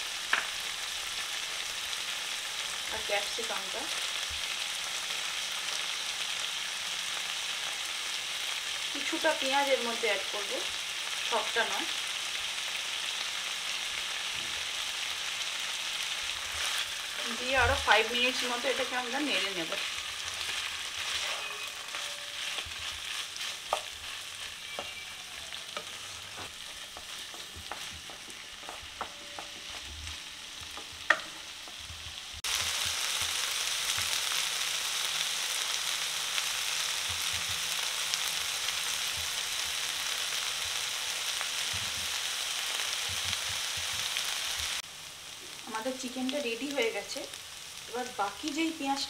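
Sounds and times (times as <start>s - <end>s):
food sizzling in oil: 0.0s - 49.0s
spatula tapping a pan: 23.7s - 24.0s, 25.7s - 33.0s, 37.0s - 37.6s.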